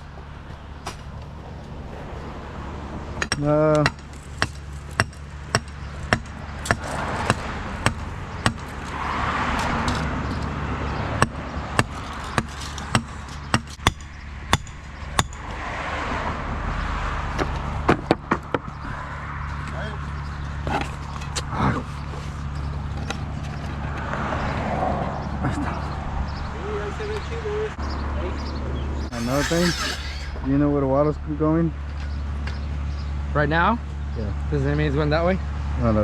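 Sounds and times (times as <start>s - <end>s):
hammer blows: 29.1s - 30.6s.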